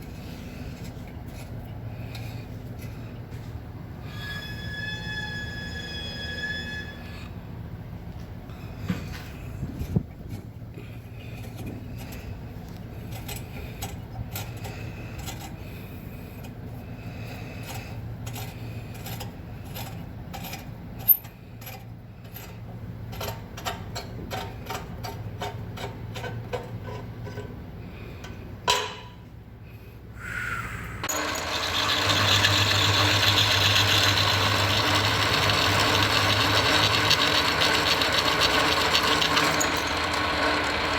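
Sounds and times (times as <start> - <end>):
steady low hum: 0.0 - 31.2.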